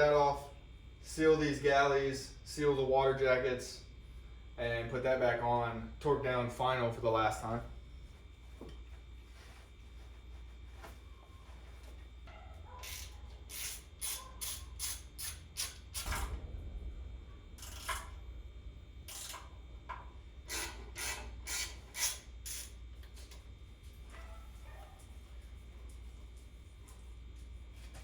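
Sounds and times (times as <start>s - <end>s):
ratchet wrench strokes: 12.8s - 16.3s, 19.1s - 19.4s, 20.5s - 22.8s.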